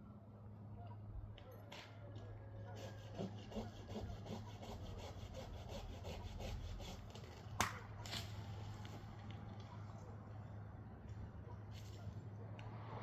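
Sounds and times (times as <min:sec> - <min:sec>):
hand saw cutting wood: 0:02.7 - 0:07.6.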